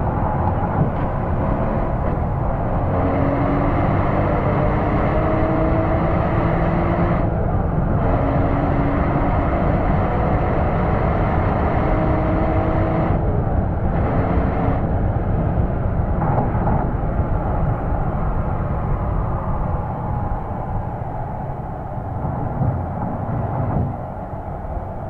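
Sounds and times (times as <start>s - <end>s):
road and wind noise: 0.0s - 25.0s.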